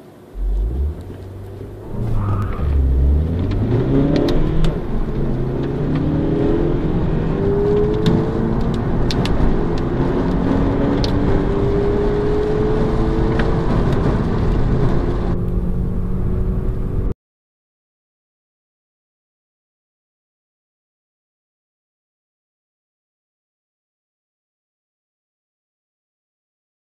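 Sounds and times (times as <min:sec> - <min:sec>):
car engine accelerating hard: 0:00.1 - 0:17.1.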